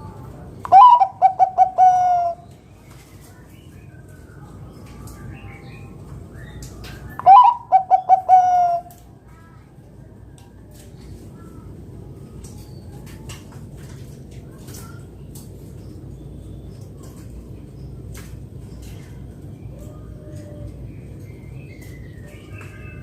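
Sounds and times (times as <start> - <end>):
dove cooing song: 0.0 - 2.6, 7.0 - 9.0, 19.6 - 23.0.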